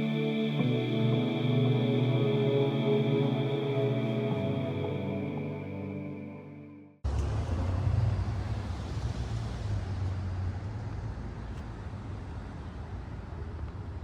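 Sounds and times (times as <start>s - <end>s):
car road noise: 7.0s - 11.8s.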